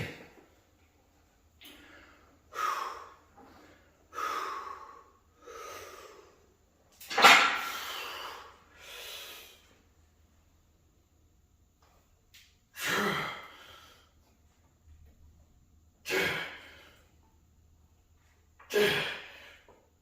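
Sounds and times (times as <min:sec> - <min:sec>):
man breathing hard: 0:01.6 - 0:06.6, 0:18.7 - 0:19.8.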